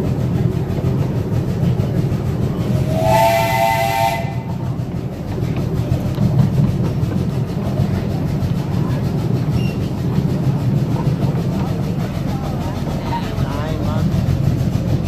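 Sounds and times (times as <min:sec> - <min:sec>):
train rumbling along track: 0:00.0 - 0:15.0
hiss of steam: 0:01.4 - 0:04.6
steam locomotive whistle: 0:02.7 - 0:04.6.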